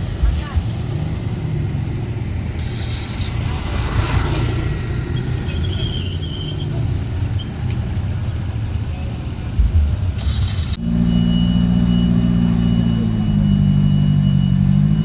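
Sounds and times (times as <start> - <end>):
off-road vehicle engines rumbling: 0.0 - 15.0
high-pitched squeal: 5.0 - 6.8.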